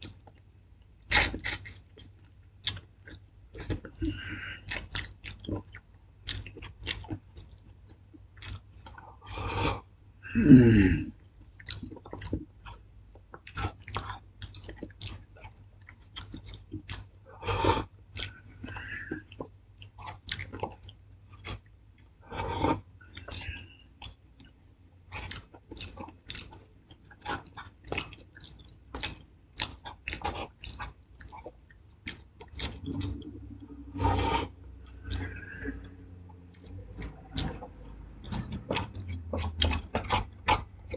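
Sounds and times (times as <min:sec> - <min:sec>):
person chewing and smacking: 0:00.0 - 0:40.9.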